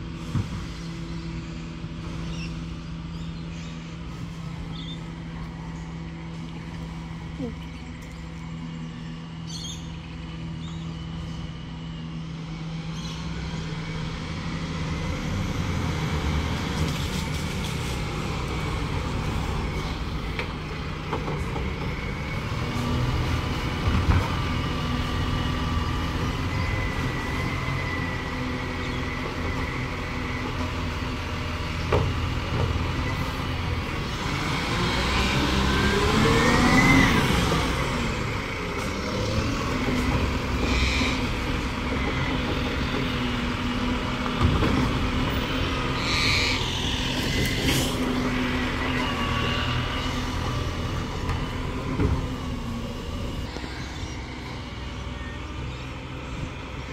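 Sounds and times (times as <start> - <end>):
garbage truck diesel engine: 0.0 - 56.9.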